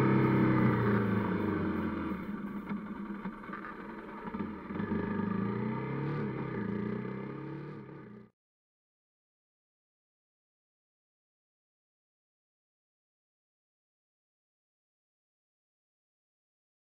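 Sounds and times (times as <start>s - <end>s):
motorcycle engine: 0.0s - 8.3s.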